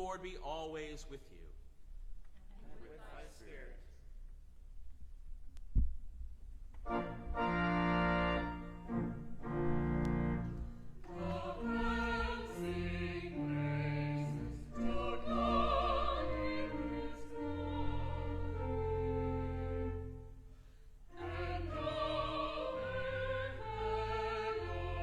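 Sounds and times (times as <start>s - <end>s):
classical singing with vibrato: 10.8s - 20.3s, 21.0s - 25.0s.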